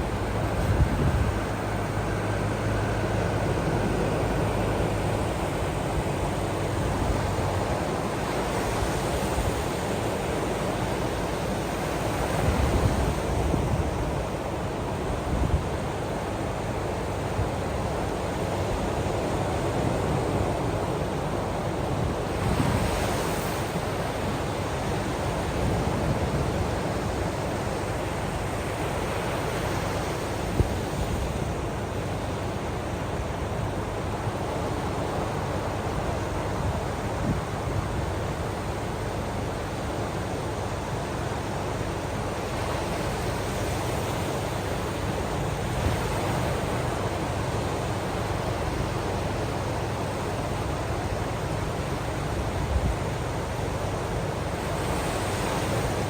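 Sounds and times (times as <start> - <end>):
ocean waves washing in: 0.0 - 56.0.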